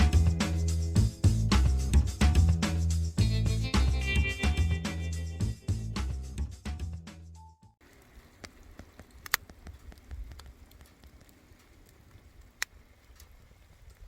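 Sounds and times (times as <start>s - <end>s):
fire crackling and popping: 7.8s - 14.0s.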